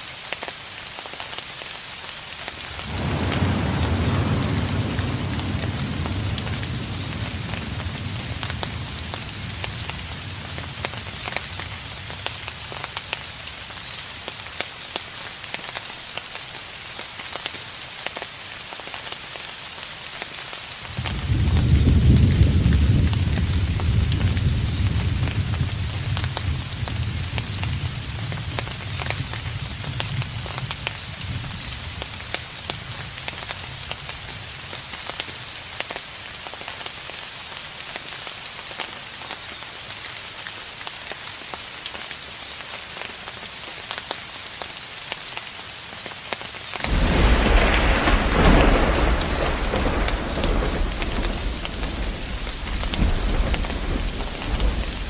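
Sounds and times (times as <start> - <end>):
steady rain: 0.0 - 55.0
distant thunder rolling: 2.7 - 13.2, 21.0 - 30.3, 46.8 - 55.0
low rumble: 2.8 - 12.2.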